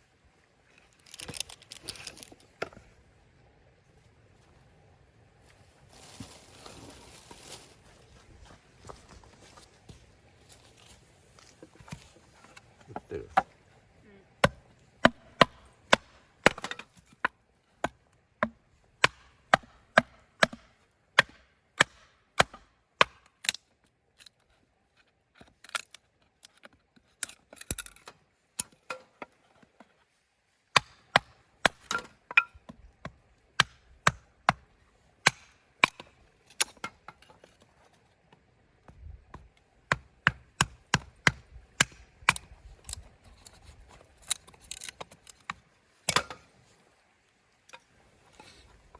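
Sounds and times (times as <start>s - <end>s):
blade chopping wood: 14.4s - 23.6s, 35.2s - 37.2s, 39.3s - 42.5s, 44.8s - 46.4s.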